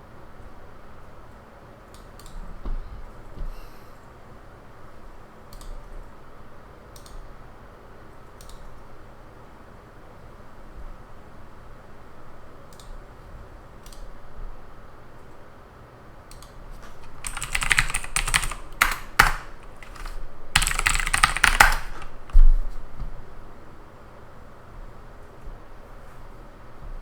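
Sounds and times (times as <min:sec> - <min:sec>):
computer keyboard typing: 0:05.5 - 0:06.1, 0:06.9 - 0:07.2, 0:16.3 - 0:22.4.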